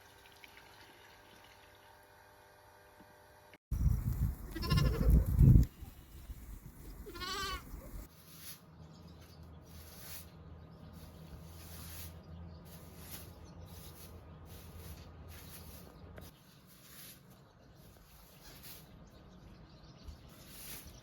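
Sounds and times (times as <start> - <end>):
goat bleating: 4.5 - 6.0, 6.9 - 8.1.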